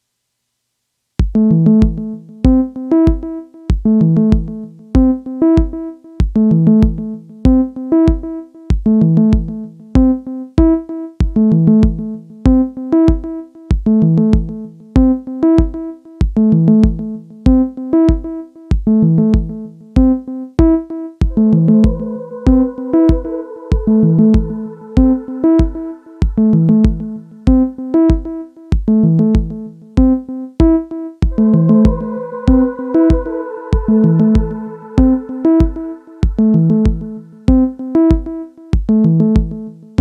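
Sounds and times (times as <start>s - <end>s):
kick drum: 1.2s - 22.0s, 23.1s - 33.2s, 33.8s - 39.6s
synth chords: 21.3s - 28.2s, 31.3s - 38.1s.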